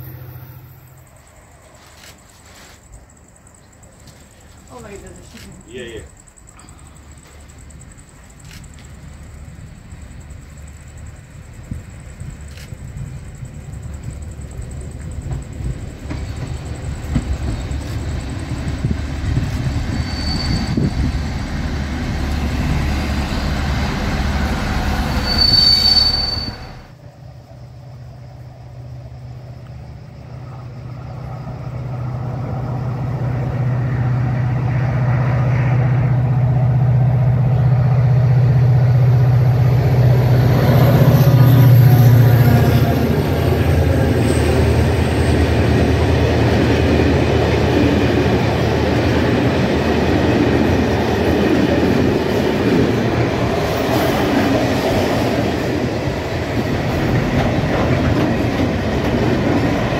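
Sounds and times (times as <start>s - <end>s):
train engine drone: 0.0s - 59.9s
train running over rails: 0.0s - 59.9s
wheel squeals: 19.4s - 21.4s, 25.0s - 26.9s.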